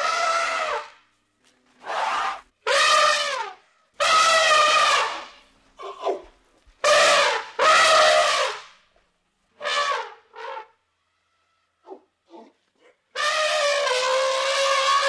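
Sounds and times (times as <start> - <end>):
elephant trumpeting: 0.0 - 0.9, 1.8 - 6.2, 6.8 - 8.6, 13.1 - 15.0.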